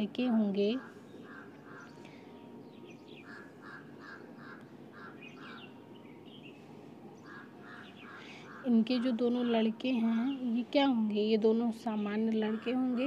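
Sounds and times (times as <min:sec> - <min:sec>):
faint repeated bird calls: 0:00.0 - 0:10.9, 0:11.8 - 0:13.0
higher bird chirps: 0:00.8 - 0:09.6.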